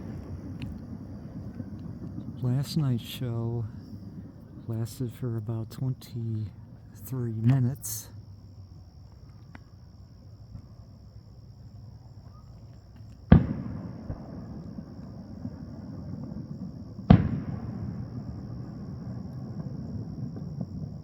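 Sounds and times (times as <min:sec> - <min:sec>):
rumbling echo: 0:00.0 - 0:07.4
fireworks shells booming: 0:00.0 - 0:08.2, 0:12.2 - 0:21.0.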